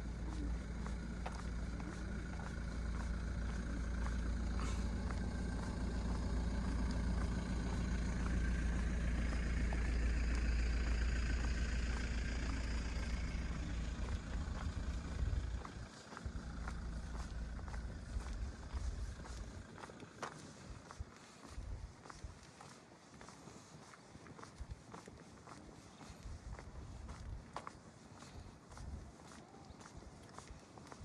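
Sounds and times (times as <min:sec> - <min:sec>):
car passing on wet street: 0:00.6 - 0:15.6.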